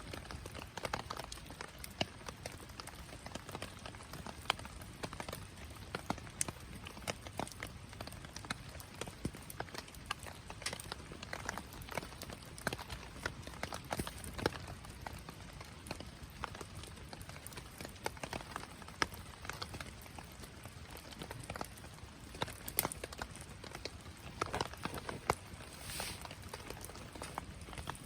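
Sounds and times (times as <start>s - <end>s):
wood fire crackling: 0.0s - 28.0s
fire hissing: 24.2s - 28.0s.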